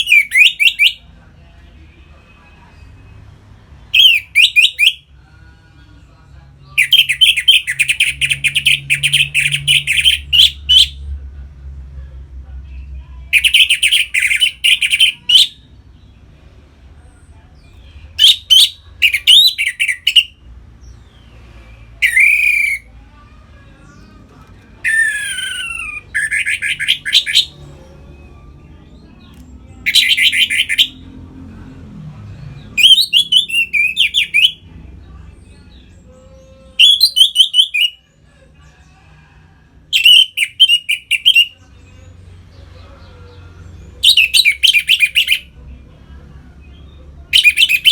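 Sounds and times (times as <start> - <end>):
thrush singing trilled phrases: 6.8 - 11.0, 13.3 - 15.6, 18.1 - 20.3, 22.0 - 23.0, 24.8 - 28.5, 29.8 - 31.0, 32.8 - 34.6, 36.0 - 38.0.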